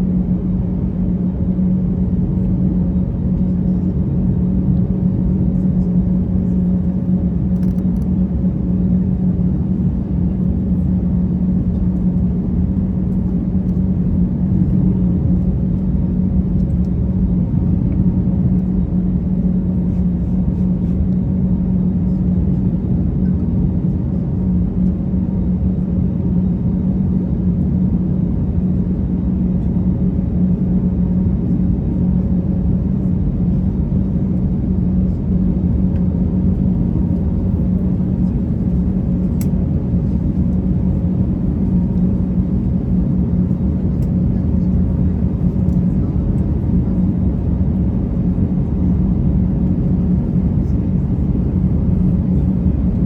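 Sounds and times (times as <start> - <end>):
airliner cabin drone: 0.0 - 53.0
faint click: 7.6 - 8.1, 39.4 - 39.6
low hum: 33.6 - 53.0.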